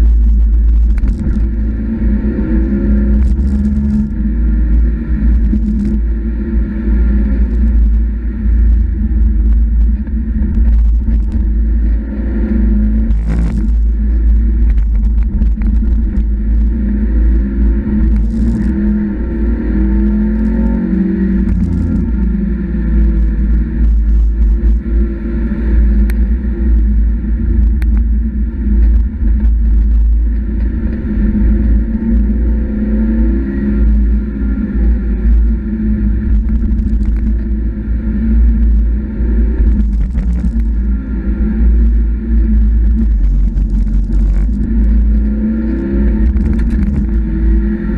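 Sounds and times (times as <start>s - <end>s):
car engine revving through gears: 0.7s - 8.0s, 10.3s - 26.8s, 38.5s - 47.9s.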